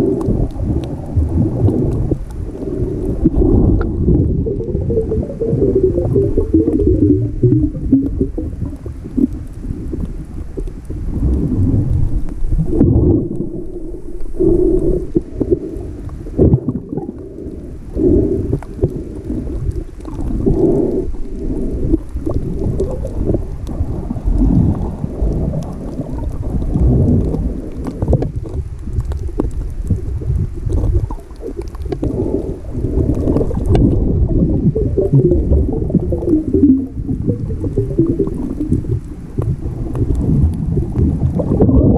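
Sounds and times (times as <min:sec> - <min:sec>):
muffled underwater churning: 0:00.0 - 0:41.9.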